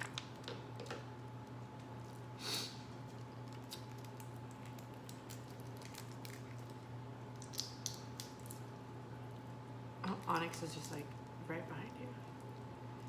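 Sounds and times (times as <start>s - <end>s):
steady low hum: 0.0s - 13.0s
shells cracked and peeled by hand: 3.1s - 8.7s.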